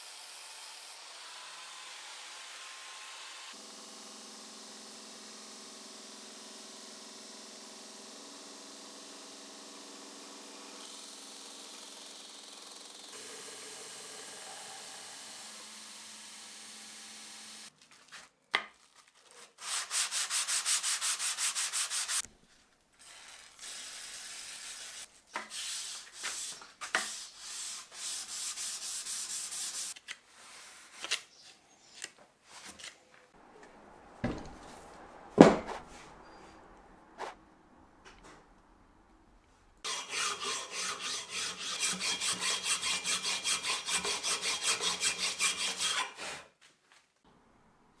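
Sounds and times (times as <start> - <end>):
small motor running: 3.4 - 17.7
sandpaper rubbing on metal: 19.6 - 22.2, 23.0 - 30.8, 39.9 - 46.4.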